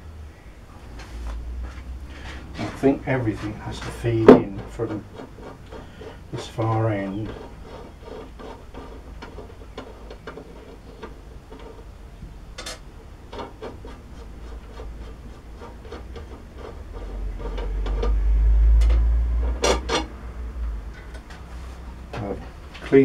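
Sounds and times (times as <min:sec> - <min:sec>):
metal parts clicking and knocking: 0:12.6 - 0:13.6
deep rumble: 0:16.6 - 0:22.7.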